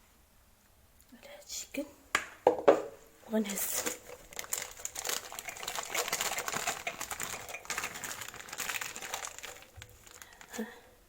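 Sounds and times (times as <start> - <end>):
plastic bag crinkling: 3.4 - 10.9.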